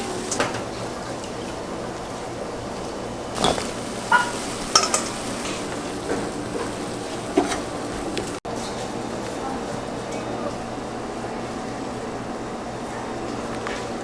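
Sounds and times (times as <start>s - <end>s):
steady hiss: 3.3s - 8.4s
metal utensils clinking on cookware: 3.4s - 8.4s.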